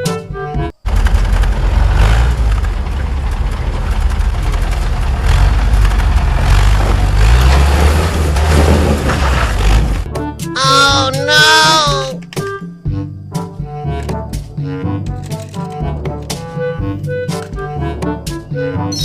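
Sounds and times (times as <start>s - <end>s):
jeep engine rumbling: 0.8s - 11.6s.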